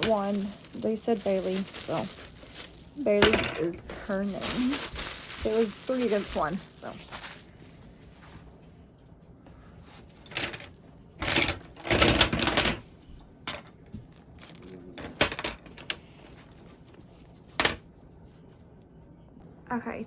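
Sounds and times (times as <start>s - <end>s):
frame pieces clacking and rattling: 10.2s - 12.9s.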